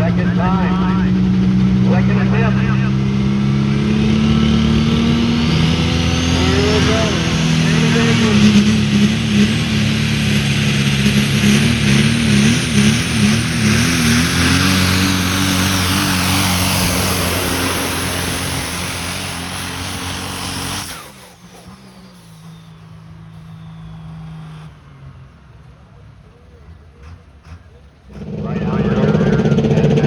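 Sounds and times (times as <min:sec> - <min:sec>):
low steady engine drone: 0:00.0 - 0:30.0
truck engine at full throttle: 0:00.0 - 0:30.0.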